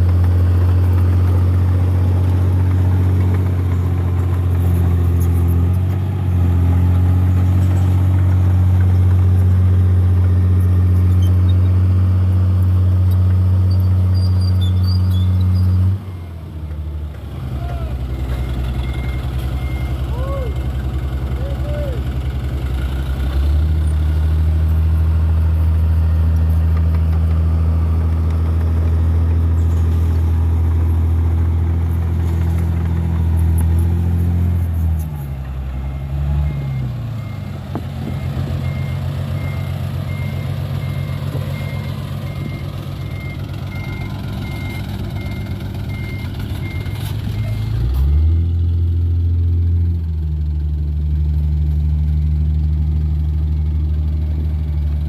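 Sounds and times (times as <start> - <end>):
truck diesel engine running: 0.0 - 55.0
reversing beeper beeps: 18.0 - 20.5, 38.1 - 47.8.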